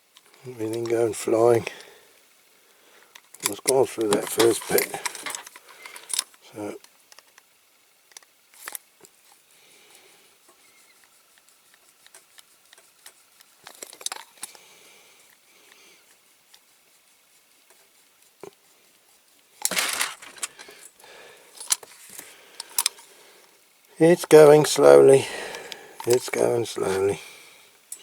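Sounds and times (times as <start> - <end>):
small metal clicks and scrapes: 0.1 - 1.0, 3.1 - 7.5, 8.1 - 8.9, 10.7 - 14.6, 19.6 - 20.9, 26.0 - 27.1.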